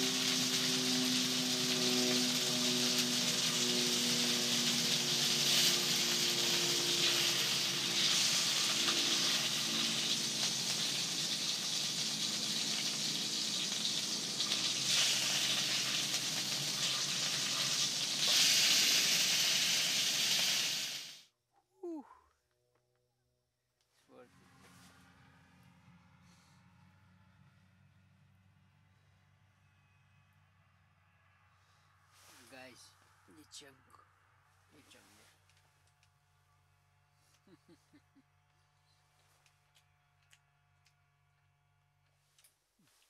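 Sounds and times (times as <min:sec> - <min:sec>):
fish frying in a pan: 0:00.0 - 0:21.2.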